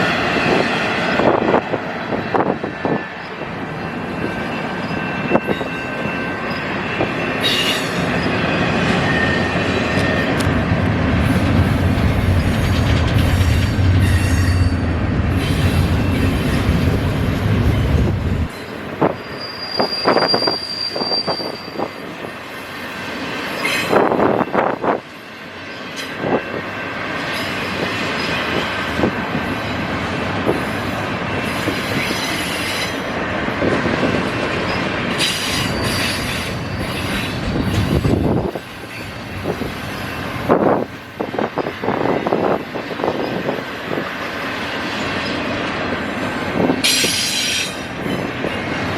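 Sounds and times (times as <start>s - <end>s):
train rolling past: 0.0s - 48.9s
high wheel squeal: 2.8s - 10.4s, 19.0s - 22.1s, 34.6s - 40.6s, 46.8s - 48.7s.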